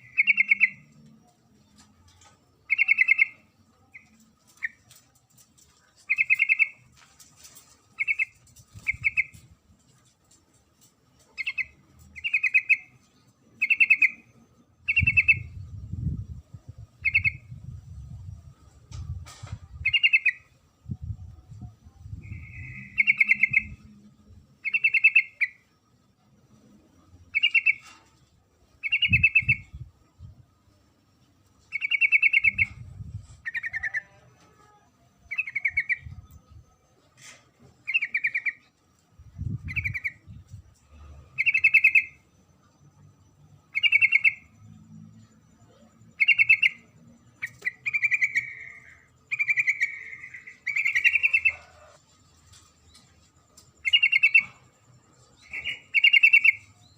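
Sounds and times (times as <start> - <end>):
bird buzzy chattering calls: 46.2 - 52.0.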